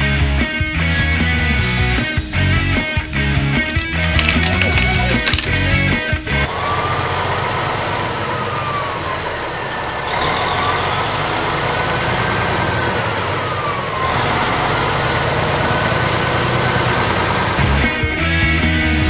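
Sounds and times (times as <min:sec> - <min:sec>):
truck engine running: 0:03.6 - 0:19.0
faint siren wailing: 0:06.6 - 0:17.2.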